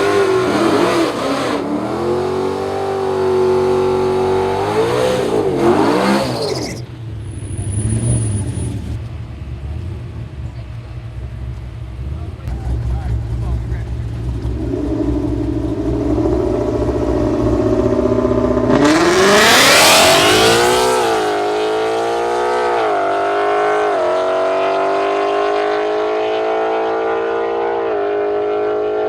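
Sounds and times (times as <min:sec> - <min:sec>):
race car engine accelerating: 0:12.0 - 0:29.0.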